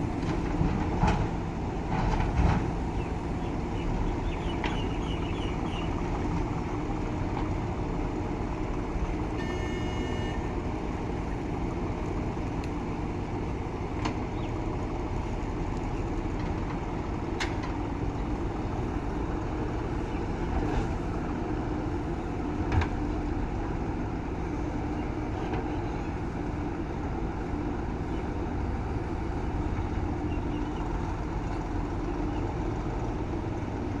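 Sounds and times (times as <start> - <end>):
diesel engine running: 0.0 - 34.0
high beep: 9.4 - 10.5.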